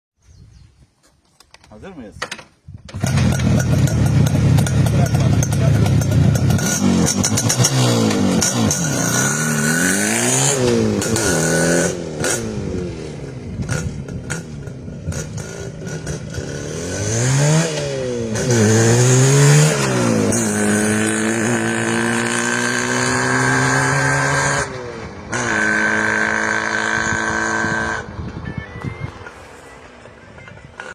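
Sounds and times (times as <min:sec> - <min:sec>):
motorcycle engine revving hard: 0:02.9 - 0:28.2.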